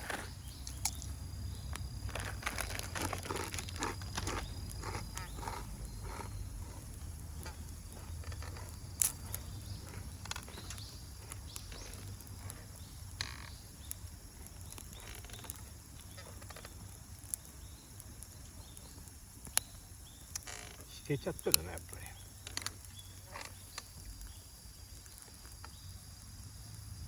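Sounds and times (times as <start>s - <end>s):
sharp pops: 0.0s - 24.3s
wood fire crackling: 0.0s - 27.0s
low steady rumble: 0.4s - 13.9s.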